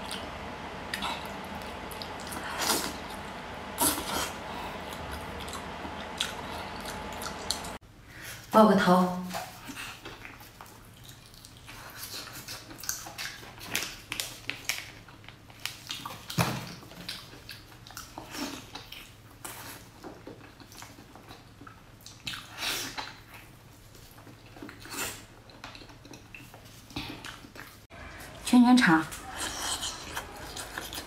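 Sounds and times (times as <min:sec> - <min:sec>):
wet chewing and lip smacks: 0:17.0 - 0:23.5.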